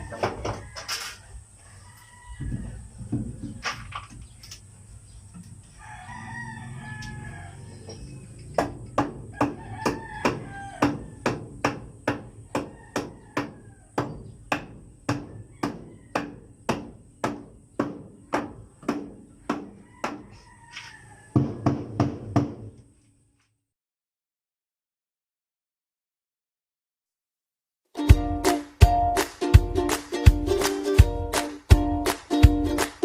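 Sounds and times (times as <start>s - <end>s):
rooster crowing: 0.0s - 3.6s, 5.6s - 8.4s, 9.2s - 11.6s, 12.2s - 14.1s, 15.2s - 16.6s, 19.6s - 21.6s
hammer striking: 8.5s - 20.2s.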